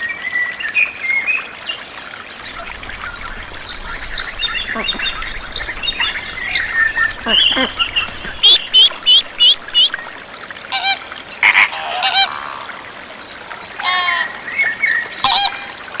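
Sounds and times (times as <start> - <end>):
water birds calling: 2.4 - 10.2.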